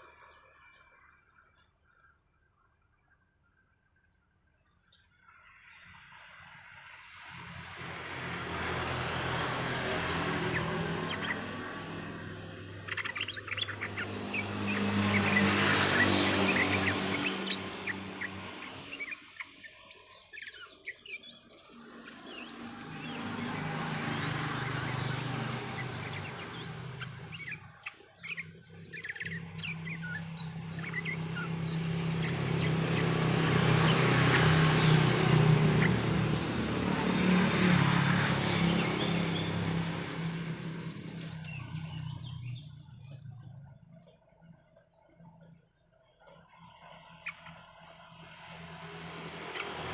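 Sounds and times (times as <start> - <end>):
bird chirping: 4.8 - 49.9.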